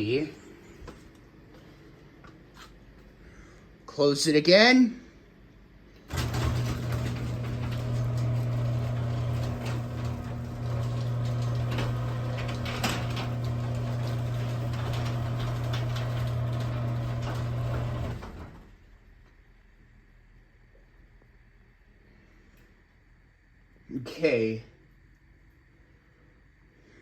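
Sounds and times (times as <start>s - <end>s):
garage door opener motor hum: 6.0s - 18.9s.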